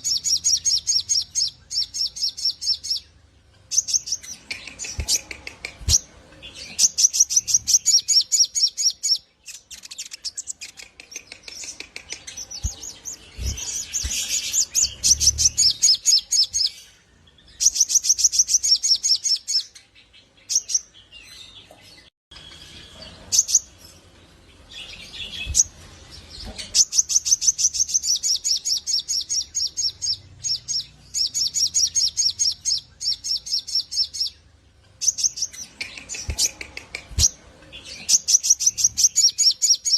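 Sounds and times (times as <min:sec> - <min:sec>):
bird trilling song: 0:00.0 - 0:39.9.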